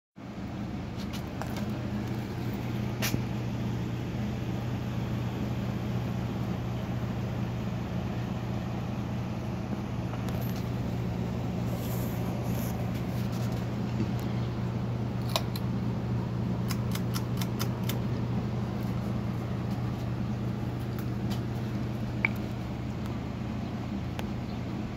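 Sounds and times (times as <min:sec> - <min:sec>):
ceiling fan motor hum: 0:00.2 - 0:24.9
sharp clicks: 0:16.6 - 0:18.0.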